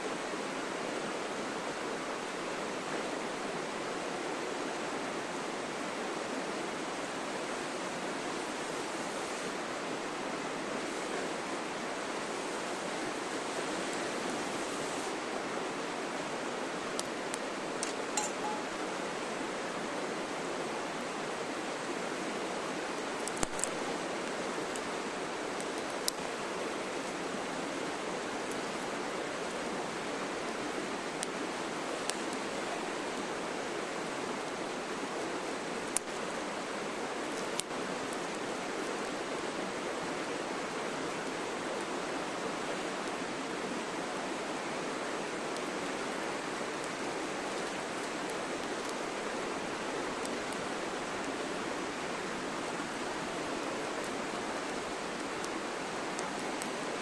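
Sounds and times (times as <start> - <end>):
campfire crackling and popping: 16.1 - 19.3, 21.2 - 40.1, 45.4 - 57.0.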